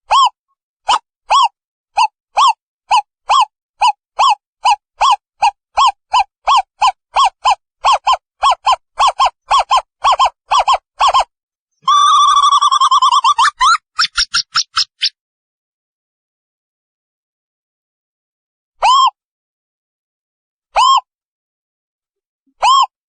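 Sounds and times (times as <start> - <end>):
wavering owl trill: 0.1 - 15.2.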